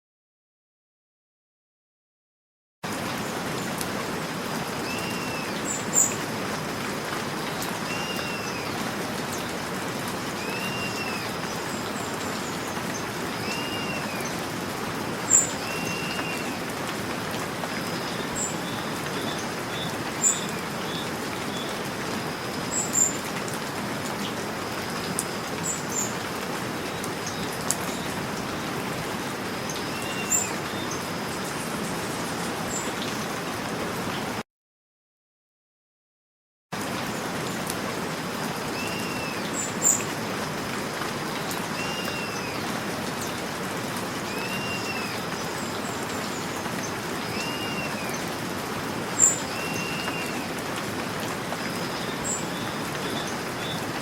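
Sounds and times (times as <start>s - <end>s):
steady rain: 2.8s - 34.4s, 36.8s - 54.0s.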